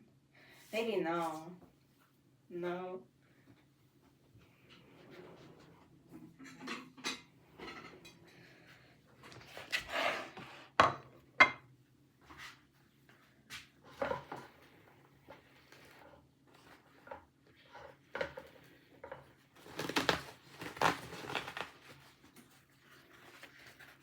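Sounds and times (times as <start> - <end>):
dishes and utensils clinking: 6.3 - 8.4.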